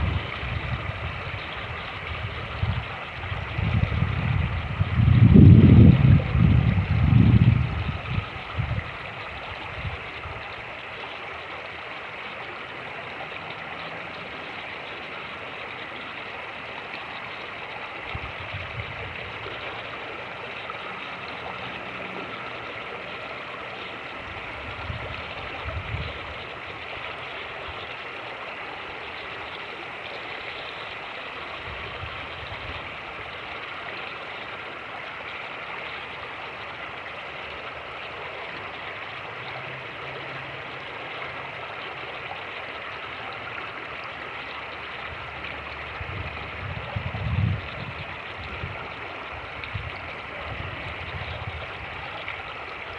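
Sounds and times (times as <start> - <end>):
wind buffeting microphone: 0.0 - 10.5, 18.1 - 19.6, 24.2 - 26.5, 45.1 - 52.9
creek rushing over rocks: 0.0 - 52.9.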